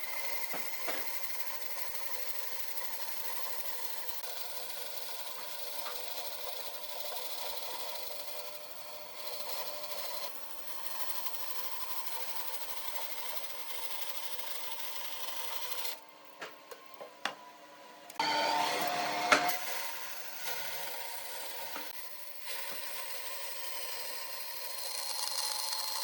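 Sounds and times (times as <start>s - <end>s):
motor hum: 15.9s - 23.0s.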